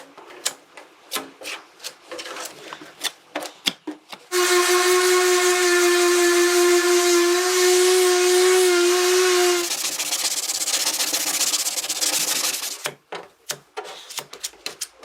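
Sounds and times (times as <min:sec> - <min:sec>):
hand scraping strokes: 0:04.3 - 0:12.9
power tool hiss and whine: 0:04.4 - 0:09.7.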